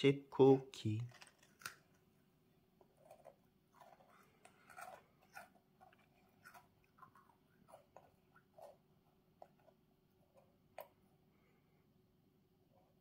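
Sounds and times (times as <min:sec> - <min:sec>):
child chewing a cookie: 0:02.8 - 0:11.1.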